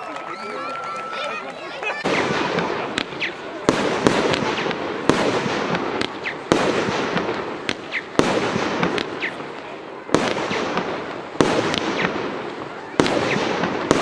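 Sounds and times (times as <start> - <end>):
firework crackling: 0.2 - 14.0
firework whistles: 2.0 - 3.5, 6.0 - 6.6, 7.6 - 9.6
firework bangs: 2.0 - 14.0.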